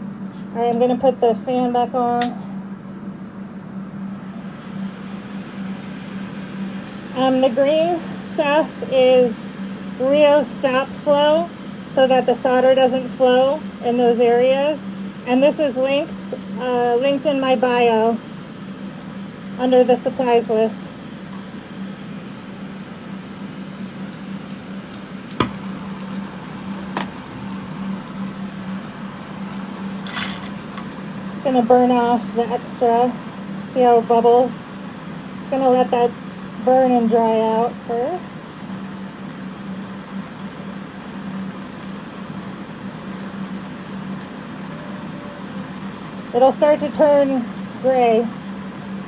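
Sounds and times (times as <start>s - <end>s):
fans humming: 0.0s - 49.0s
soldering torch flame hissing: 23.6s - 49.0s.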